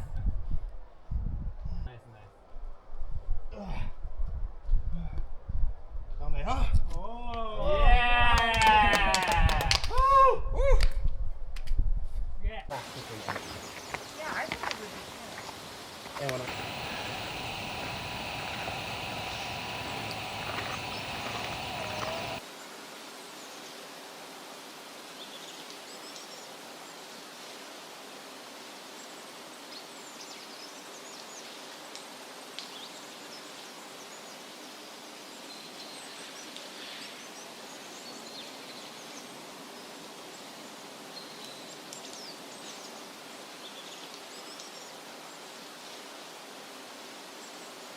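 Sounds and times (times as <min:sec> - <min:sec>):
background hiss: 0:12.7 - 0:22.4
faint bird chirps: 0:16.4 - 0:22.4.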